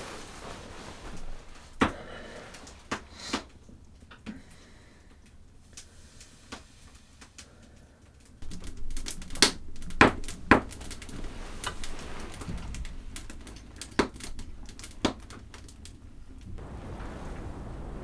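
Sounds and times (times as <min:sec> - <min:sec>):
sharp clicks and cracks: 0:08.2 - 0:16.5.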